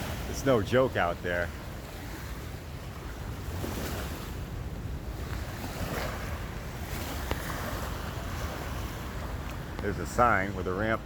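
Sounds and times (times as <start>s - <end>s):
river rushing: 0.0s - 11.0s
wind buffeting microphone: 0.0s - 11.0s.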